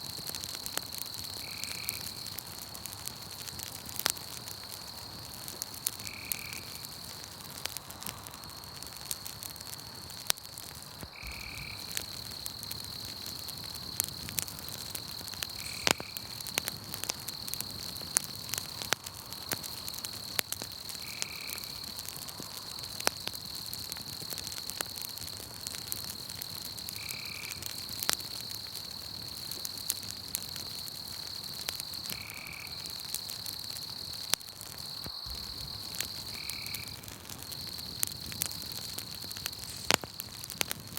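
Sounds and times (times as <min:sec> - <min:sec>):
campfire crackling and popping: 0:00.0 - 0:40.9
high-pitched insect trill: 0:06.0 - 0:07.0, 0:11.1 - 0:14.0, 0:14.7 - 0:16.6, 0:31.8 - 0:34.2, 0:34.8 - 0:40.3
frog-like animal call: 0:11.2 - 0:12.0.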